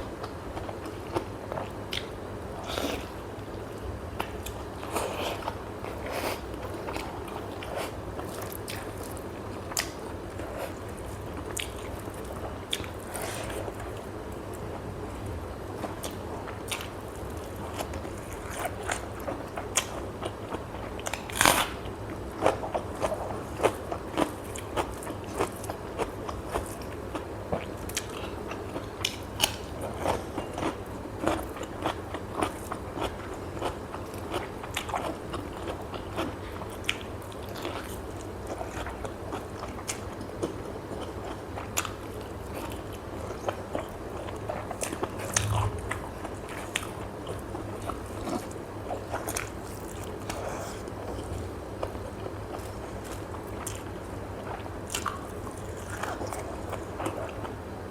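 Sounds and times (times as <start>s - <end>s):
low steady hum: 0.0s - 57.9s
person chewing crunchy food: 15.8s - 57.5s.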